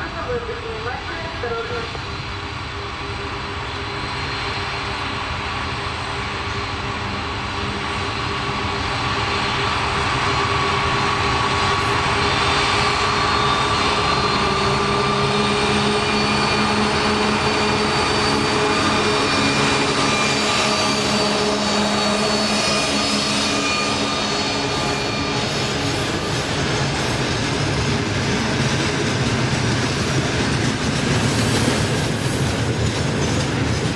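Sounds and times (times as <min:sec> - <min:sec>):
diesel locomotive engine drone: 0:00.0 - 0:33.9.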